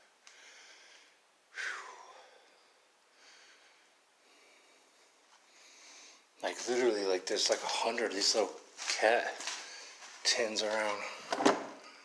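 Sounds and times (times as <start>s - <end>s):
person breathing heavily: 0.2s - 6.4s.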